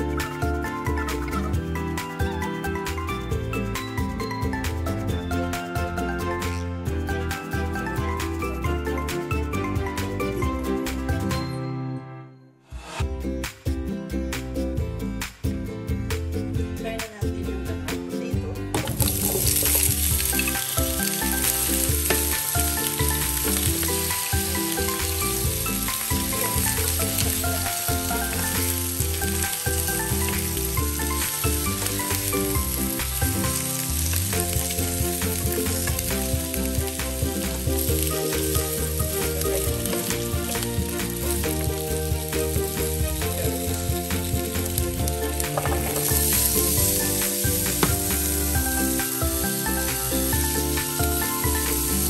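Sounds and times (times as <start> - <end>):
potatoes sizzling in hot oil: 18.8 - 52.0.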